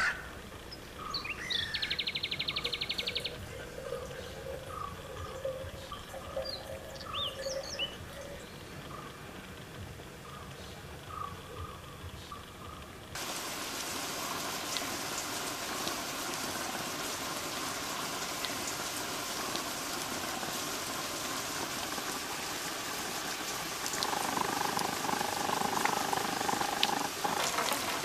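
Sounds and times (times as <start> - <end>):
rain falling steadily: 0.0 - 28.0
water dripping: 1.1 - 9.2, 13.2 - 28.0.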